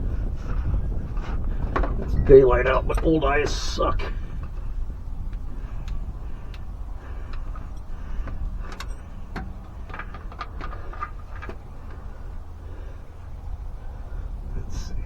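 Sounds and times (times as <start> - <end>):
steady low rumble: 0.0 - 15.0
clicks and metal taps from tools: 7.3 - 12.1.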